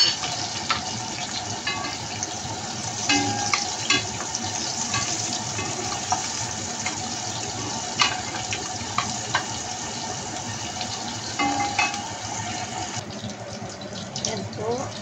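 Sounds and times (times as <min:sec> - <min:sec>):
onions sizzling in hot oil: 0:00.0 - 0:13.2
wooden spatula knocking on pot: 0:03.1 - 0:04.2.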